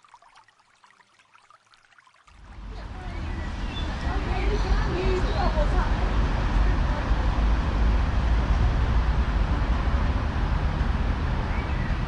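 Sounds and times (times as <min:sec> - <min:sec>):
city street traffic rumble: 0:02.5 - 0:12.0
cars and scooters passing: 0:02.6 - 0:12.0.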